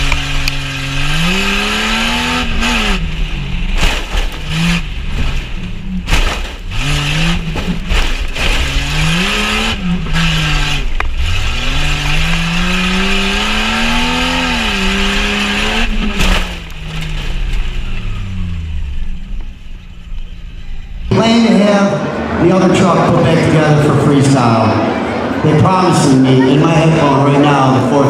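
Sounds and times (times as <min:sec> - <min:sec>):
engine revving hard: 0:00.0 - 0:19.2
bangs and knocks from suspension: 0:03.6 - 0:09.3, 0:15.8 - 0:17.8.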